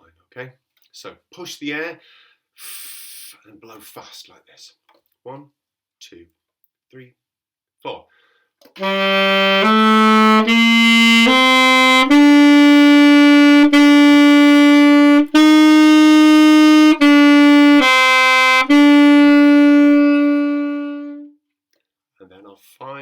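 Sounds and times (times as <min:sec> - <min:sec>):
saxophone playing loudly: 0:08.8 - 0:21.4.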